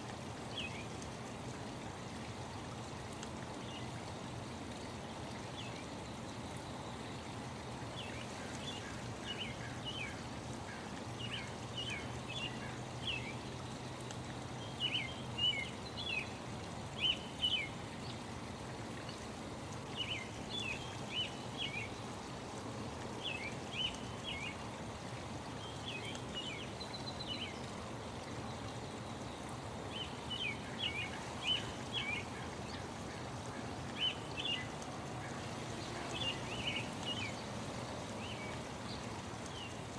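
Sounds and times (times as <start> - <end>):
stream flowing: 0.0 - 39.9
songbirds chirping: 25.4 - 39.9.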